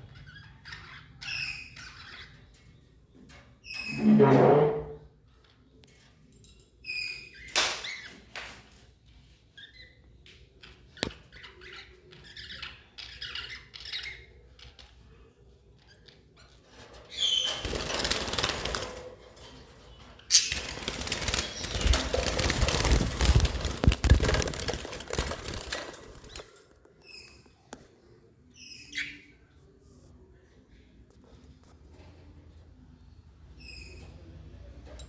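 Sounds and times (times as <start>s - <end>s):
loud wing flapping: 20.5s - 26.4s.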